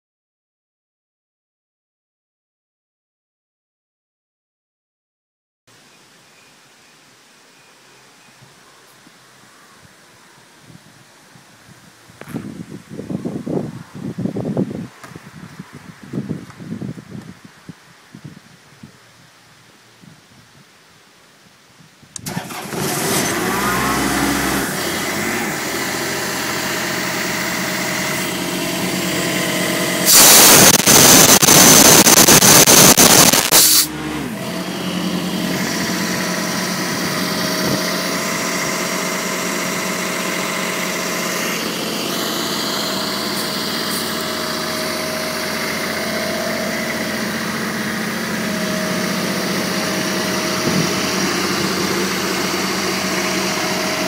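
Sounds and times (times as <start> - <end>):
diesel engine running: 22.2 - 54.0
loud rush of air: 23.4 - 39.1, 39.9 - 54.0.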